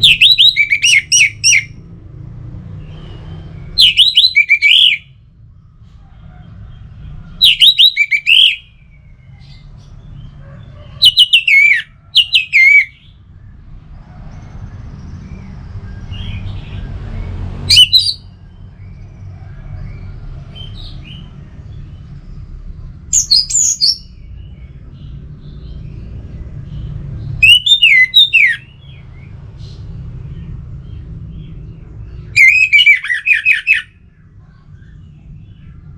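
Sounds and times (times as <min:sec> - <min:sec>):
bird warbling: 0:00.0 - 0:01.8, 0:03.8 - 0:05.0, 0:07.4 - 0:08.7, 0:11.0 - 0:13.0, 0:27.4 - 0:28.7, 0:32.4 - 0:33.9.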